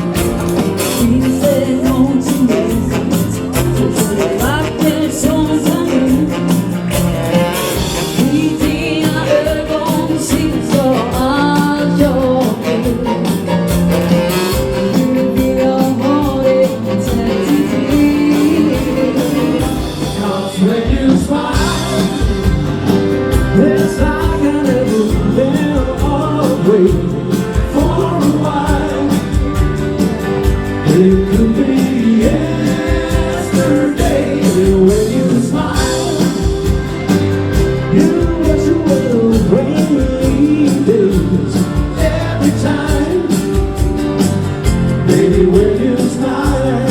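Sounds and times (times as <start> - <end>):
dance band playing: 0.0 - 46.9
drum beat: 0.0 - 46.9
woman singing: 0.8 - 6.8, 7.4 - 13.6, 14.3 - 22.6, 23.5 - 29.6, 30.8 - 36.8.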